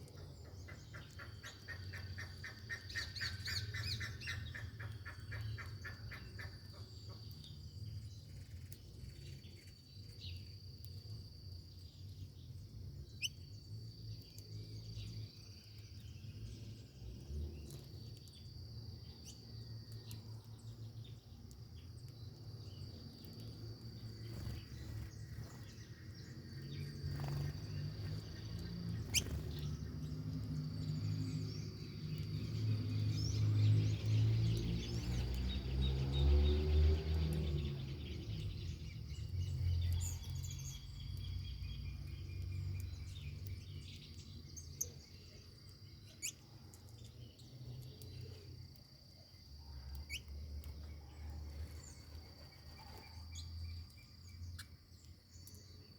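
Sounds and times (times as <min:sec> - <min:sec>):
bird chirps: 0:00.0 - 0:11.1, 0:11.8 - 0:55.9
high-pitched insect trill: 0:24.0 - 0:34.4.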